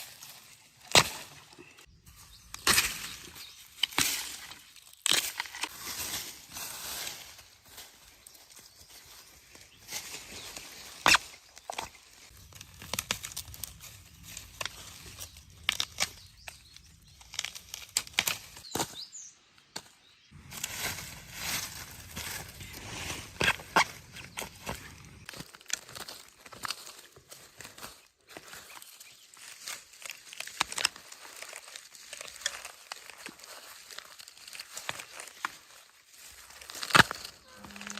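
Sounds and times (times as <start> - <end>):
rustling stalks and leaves: 0.0 - 37.9
bamboo shoots snapping: 0.2 - 1.9, 2.5 - 5.8, 10.9 - 18.9, 29.4 - 37.9.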